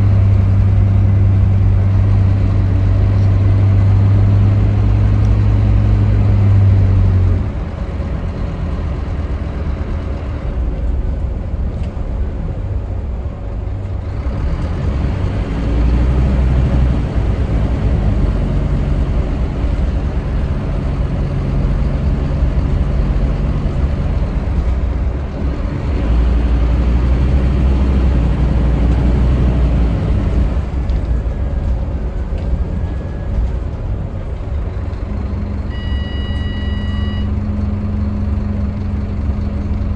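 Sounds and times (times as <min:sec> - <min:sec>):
bus diesel engine: 0:00.0 - 0:39.9
road noise: 0:00.0 - 0:39.9.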